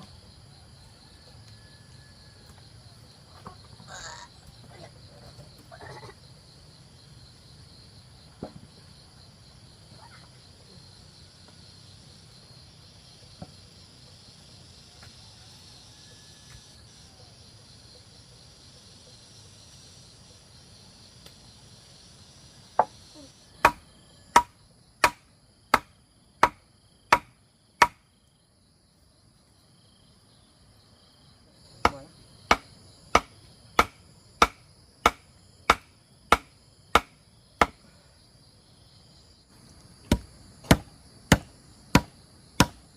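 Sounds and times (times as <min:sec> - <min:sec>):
insects chirring: 0:00.0 - 0:42.9
sharp chopping blows: 0:23.6 - 0:28.0, 0:31.8 - 0:37.8, 0:40.1 - 0:42.8.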